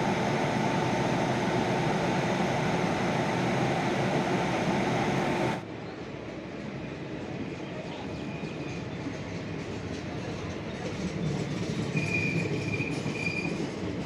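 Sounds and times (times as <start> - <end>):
train wheels rumbling on rails: 0.0 - 14.0
high-pitched train squeals: 8.1 - 14.0.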